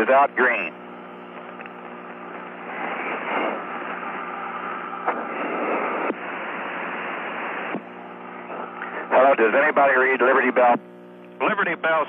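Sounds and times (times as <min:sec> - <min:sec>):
radio static hissing: 0:00.0 - 0:12.0.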